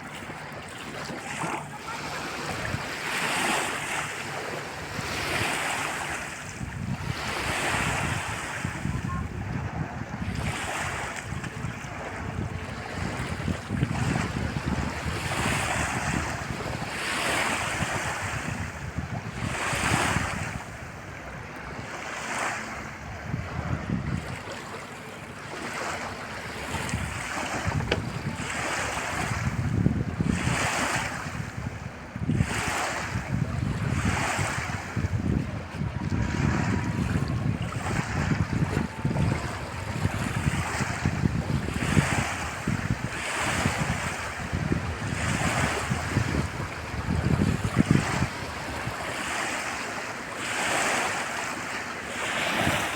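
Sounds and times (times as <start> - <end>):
wind rumbling on microphone: 0.0 - 52.9
water washing and splashing: 24.1 - 31.4.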